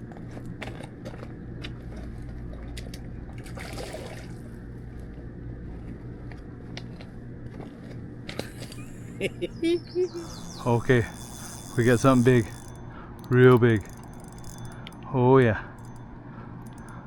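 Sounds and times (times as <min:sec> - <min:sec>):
low motor hum: 0:00.0 - 0:17.0
light water noise: 0:02.5 - 0:04.7
sharp clicks: 0:11.0 - 0:16.0.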